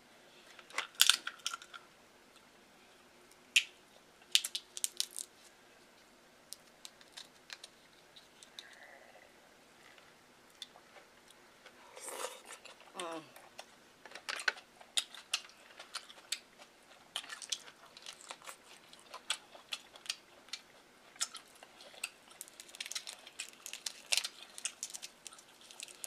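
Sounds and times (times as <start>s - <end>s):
person chewing and lip-smacking: 14.9s - 26.0s.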